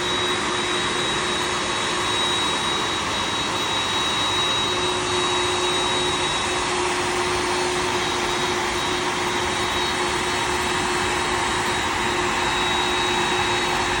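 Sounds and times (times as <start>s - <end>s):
high engine whine: 0.0s - 14.0s
jet engines roaring: 0.0s - 14.0s.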